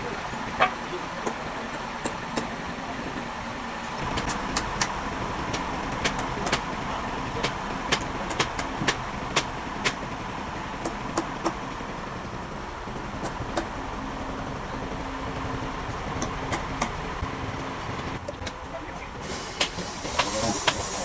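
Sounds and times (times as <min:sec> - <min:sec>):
machine running: 0:00.0 - 0:21.0
sharp clicks and knocks: 0:02.0 - 0:02.6, 0:04.0 - 0:11.9, 0:12.9 - 0:13.8, 0:15.9 - 0:21.0.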